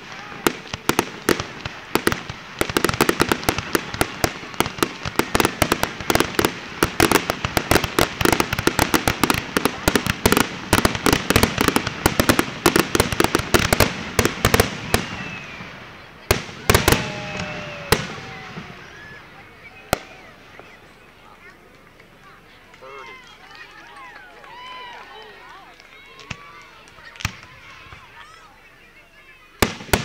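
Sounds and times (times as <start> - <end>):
fireworks bursting: 0.0 - 22.6, 29.6 - 30.0.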